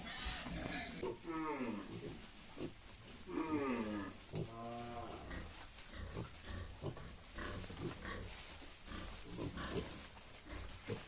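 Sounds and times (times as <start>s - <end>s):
pig pitched call: 0.0s - 1.8s
pigs grunting: 0.0s - 11.0s.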